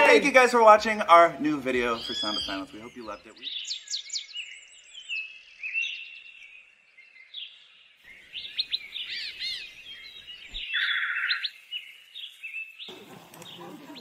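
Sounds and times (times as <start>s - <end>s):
songbirds singing and chirping: 0.0s - 14.0s
buzzy bird trill: 1.7s - 4.6s.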